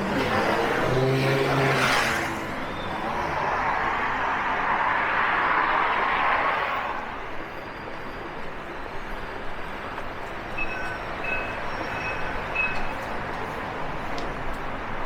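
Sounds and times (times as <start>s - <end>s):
vehicle passing: 0.0s - 8.0s
street traffic noise: 0.0s - 15.0s.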